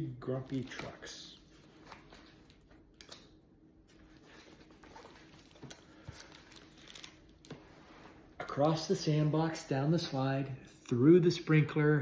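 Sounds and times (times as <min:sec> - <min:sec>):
book pages handled: 0:00.3 - 0:08.2.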